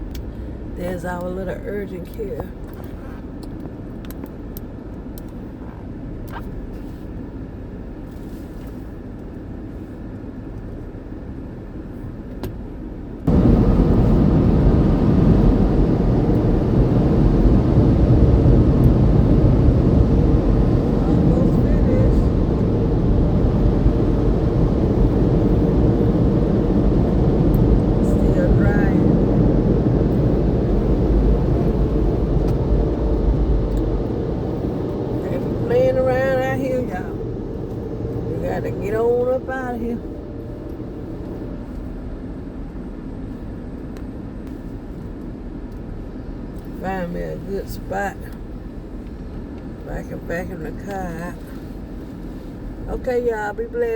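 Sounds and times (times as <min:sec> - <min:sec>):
low steady rumble: 0:00.0 - 0:53.9
air dryer blowers rushing: 0:13.3 - 0:41.5.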